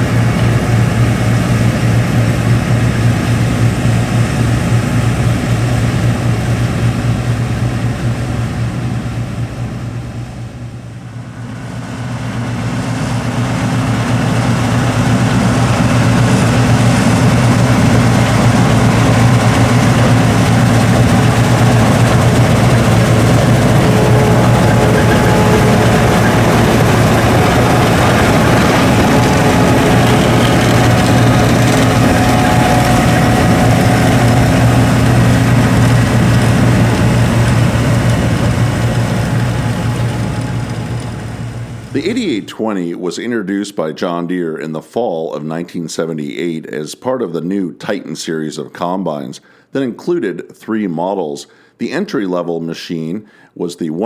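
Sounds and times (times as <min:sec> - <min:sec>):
combine harvester engine droning: 0:00.0 - 0:42.6.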